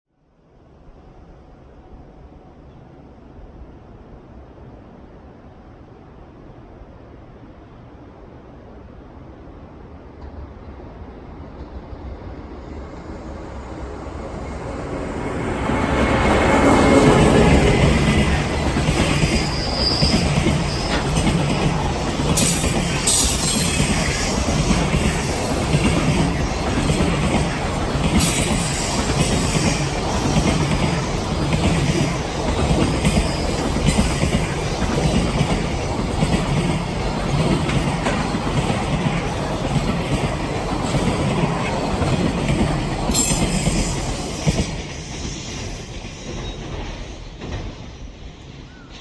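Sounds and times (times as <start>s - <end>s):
train wheels rumbling and clattering: 10.0s - 49.0s
high wheel squeals: 14.4s - 36.1s, 43.0s - 49.0s.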